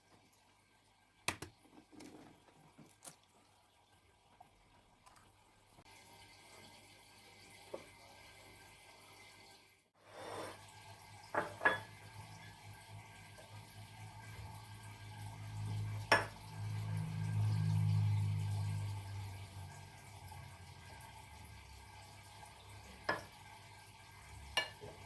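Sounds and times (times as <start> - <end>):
water running and dripping: 0.0 - 9.4
dishes clinking: 11.3 - 12.0.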